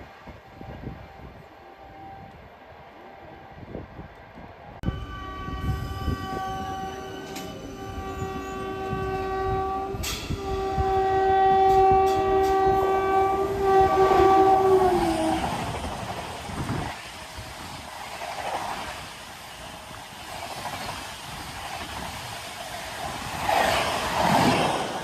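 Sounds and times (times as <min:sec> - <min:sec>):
train horn: 0:04.8 - 0:15.8
rail clatter: 0:05.6 - 0:17.0.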